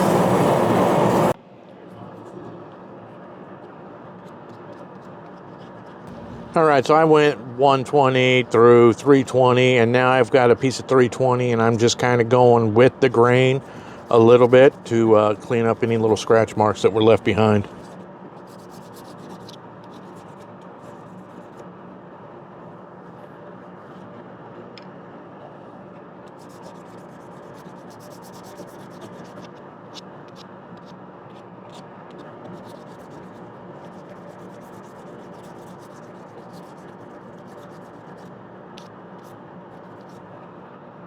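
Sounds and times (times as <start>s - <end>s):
steady low hum: 0.0s - 1.4s, 6.1s - 18.0s
sandpaper rubbing on wood: 6.1s - 6.9s, 26.4s - 29.5s, 32.5s - 38.3s.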